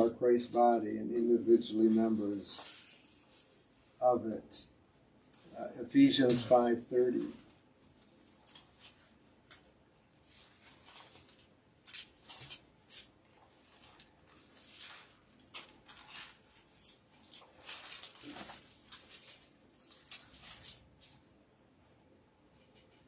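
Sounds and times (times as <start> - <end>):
paper rustling: 10.2 - 21.3.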